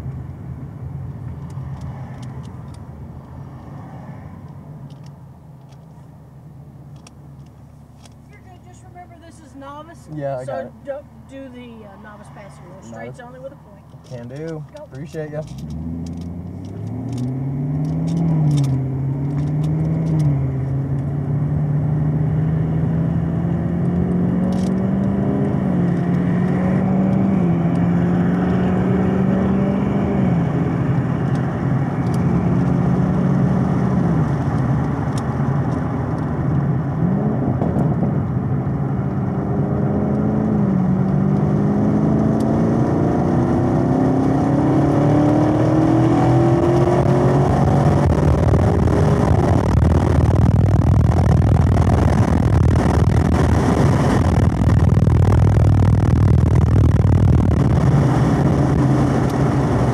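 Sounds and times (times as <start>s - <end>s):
car engine accelerating: 6.8s - 59.9s.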